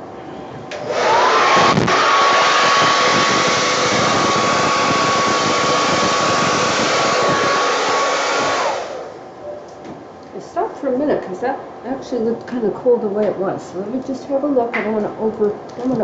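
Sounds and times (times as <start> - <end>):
hair dryer motor whine: 0.7 - 9.2
rush of blown air: 0.8 - 9.2.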